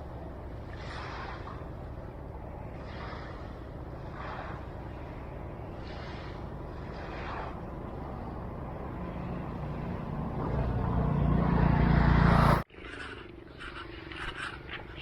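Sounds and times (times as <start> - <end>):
vehicle engine approaching: 6.0 - 12.7.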